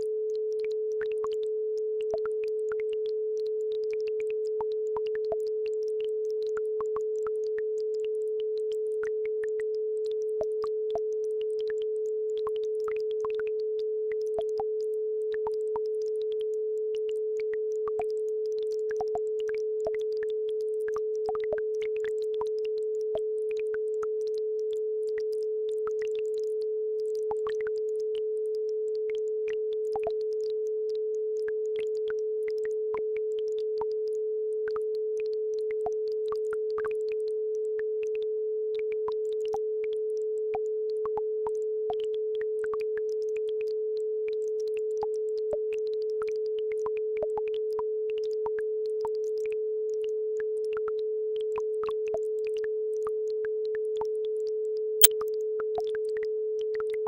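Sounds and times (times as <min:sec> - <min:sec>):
steady sine tone: 0:00.0 - 0:18.5.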